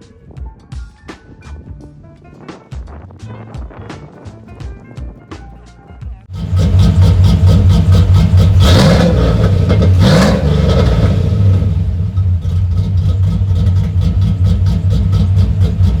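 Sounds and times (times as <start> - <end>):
pickup truck engine idling: 6.3 - 16.0
pickup truck engine revving: 6.3 - 16.0.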